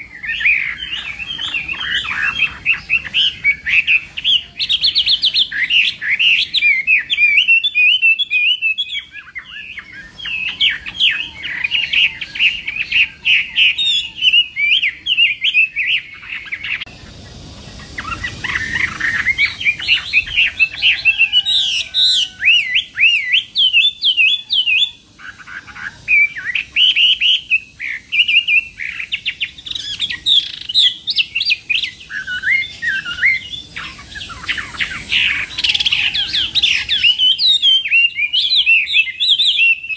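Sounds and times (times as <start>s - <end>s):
bird singing whistled phrases: 0.0s - 39.9s.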